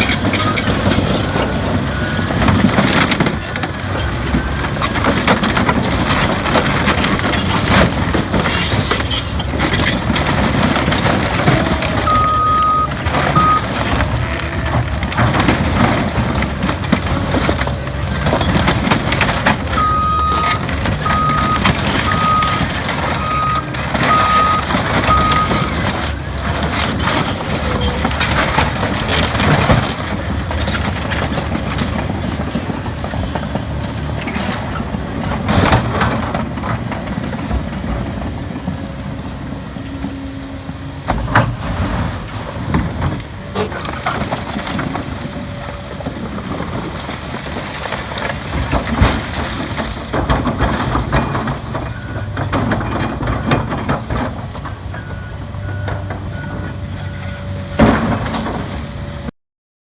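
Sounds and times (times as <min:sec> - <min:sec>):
car being crushed: 0:00.0 - 0:38.3, 0:41.1 - 0:54.7
diesel engine of heavy machinery: 0:00.0 - 0:59.3
backup alarm beeping: 0:11.8 - 0:13.8, 0:19.7 - 0:25.9.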